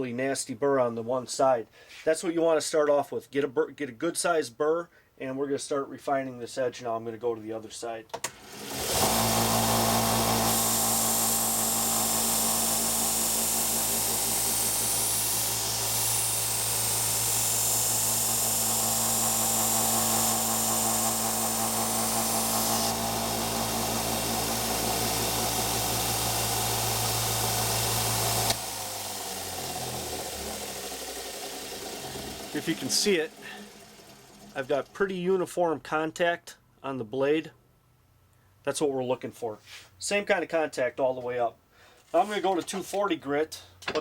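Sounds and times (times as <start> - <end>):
motor hum: 8.5 - 35.0
knife grinding on belt sander: 8.8 - 35.0.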